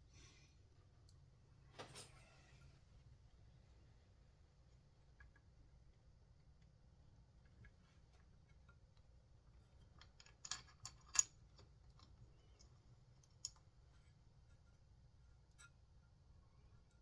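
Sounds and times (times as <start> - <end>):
small parts clicking: 10.0 - 13.6.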